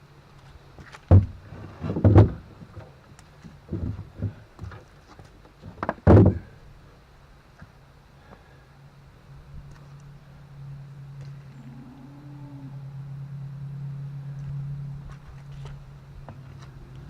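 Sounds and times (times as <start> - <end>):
faint low hum: 0.0 - 17.0
dull knocks and thumps: 1.1 - 2.9, 3.5 - 4.8, 5.6 - 6.5.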